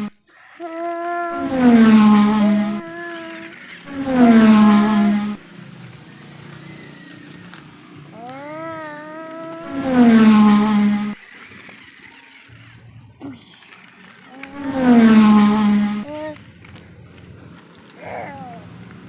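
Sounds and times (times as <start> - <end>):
child making vroom sounds: 0.4 - 3.6, 8.1 - 10.0, 14.3 - 14.8, 15.9 - 16.4, 18.0 - 18.8.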